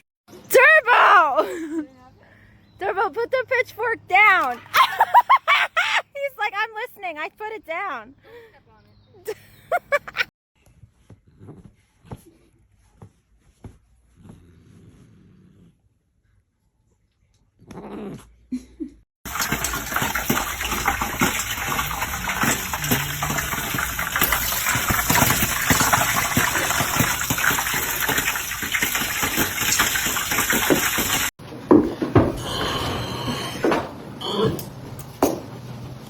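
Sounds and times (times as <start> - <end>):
running water: 19.3 - 31.3.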